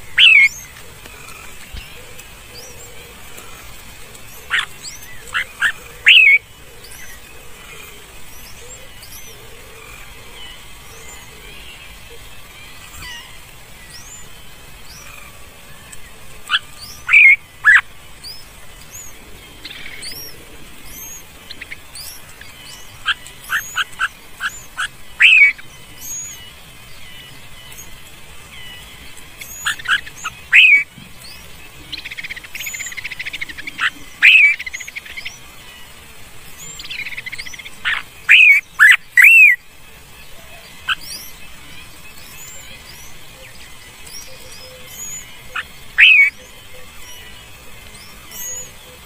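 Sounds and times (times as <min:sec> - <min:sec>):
loud sharp bird chirps: 0:00.0 - 0:00.6, 0:04.5 - 0:06.4, 0:21.0 - 0:26.5, 0:29.4 - 0:35.4, 0:36.8 - 0:39.6, 0:44.1 - 0:47.4
thin high bird chirps: 0:00.1 - 0:01.9, 0:03.4 - 0:07.2, 0:20.9 - 0:35.9, 0:36.6 - 0:39.6.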